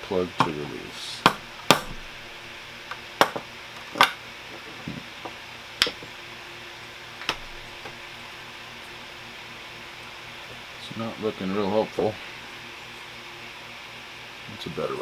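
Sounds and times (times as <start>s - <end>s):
hammer striking plastic: 0.4s - 4.2s.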